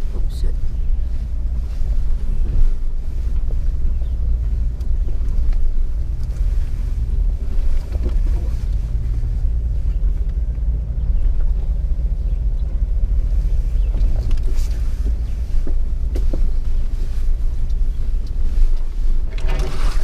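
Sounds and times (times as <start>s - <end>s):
engine low rumble: 0.0s - 20.0s
wind buffeting microphone: 0.0s - 20.0s.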